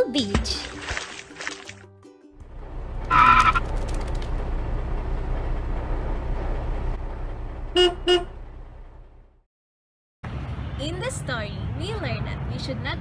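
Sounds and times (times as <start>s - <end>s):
road traffic rumbling: 2.4s - 9.5s, 10.2s - 13.0s
car horn toots: 3.1s - 3.6s, 7.7s - 8.4s.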